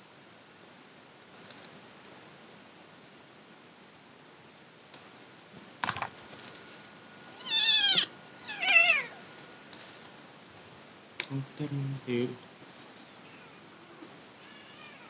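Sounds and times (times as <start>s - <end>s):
kitten meowing: 7.4s - 9.2s, 14.4s - 15.0s.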